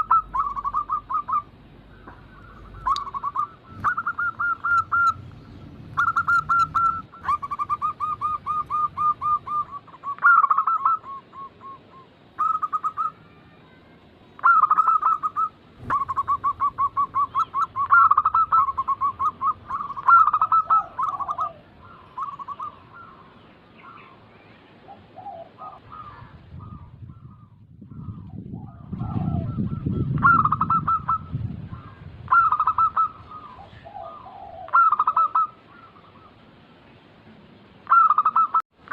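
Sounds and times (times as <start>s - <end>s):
doves cooing: 0.0s - 13.3s, 14.4s - 36.6s, 37.8s - 38.9s
low rumble: 4.8s - 7.2s.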